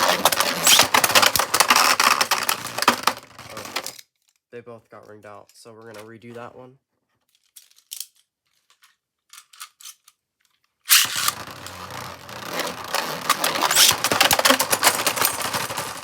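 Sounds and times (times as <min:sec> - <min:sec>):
spinning tops clashing in plastic stadium: 0:10.9 - 0:16.0.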